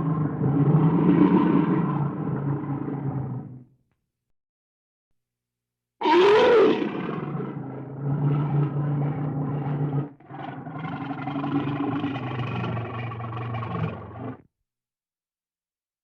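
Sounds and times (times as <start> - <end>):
large animal call: 6.0 - 14.4.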